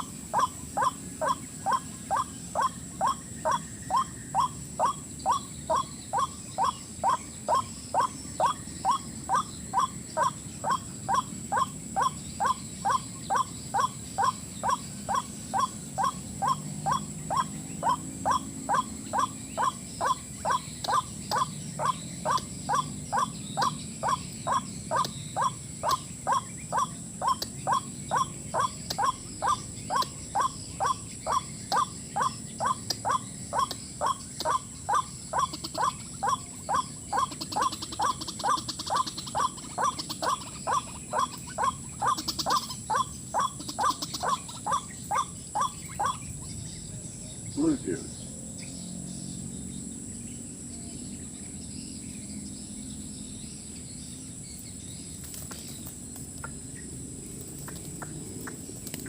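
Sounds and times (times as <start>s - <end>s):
waterhen calls: 0.0s - 46.4s.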